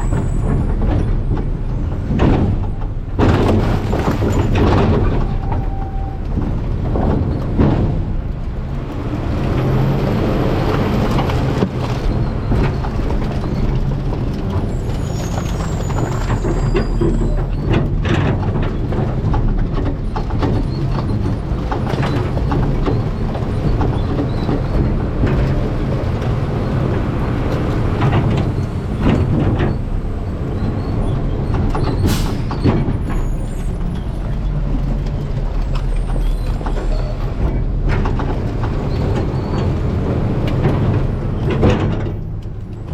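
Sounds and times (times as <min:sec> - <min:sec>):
trash cracking and knocking: 0:00.0 - 0:08.6
diesel engine running: 0:17.2 - 0:42.9.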